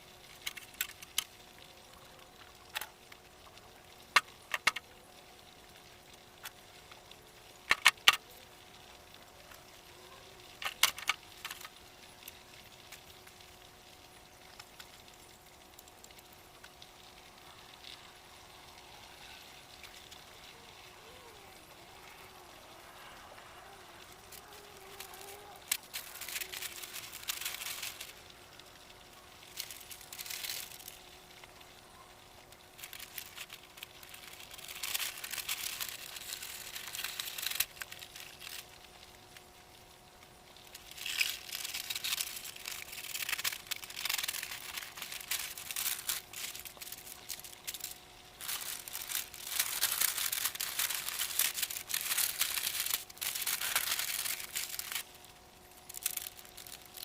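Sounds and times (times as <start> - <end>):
faint steady hum: 0.0 - 57.0
dry material rustling: 24.3 - 28.2, 32.7 - 38.6, 40.8 - 55.1.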